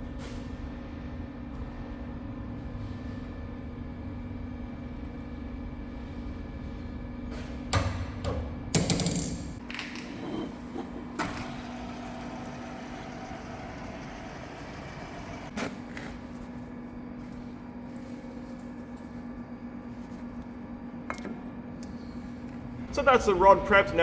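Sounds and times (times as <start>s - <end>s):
machine hum: 0.0s - 15.6s.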